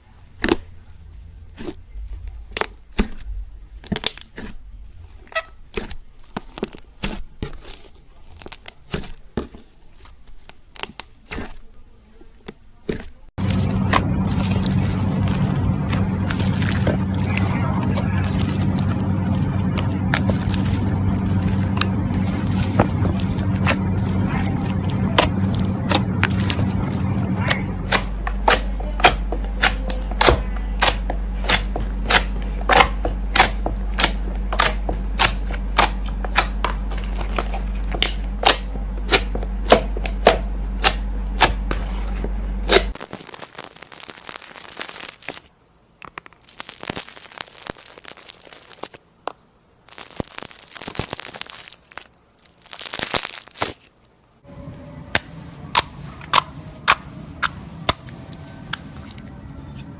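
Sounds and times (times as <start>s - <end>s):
steady low hum: 0.0s - 8.2s, 13.2s - 43.9s, 53.6s - 59.9s
soft crinkly noise: 0.0s - 29.5s, 41.8s - 49.0s, 49.8s - 54.4s
slime clicking and popping: 12.9s - 41.8s, 42.7s - 49.0s, 49.9s - 53.9s.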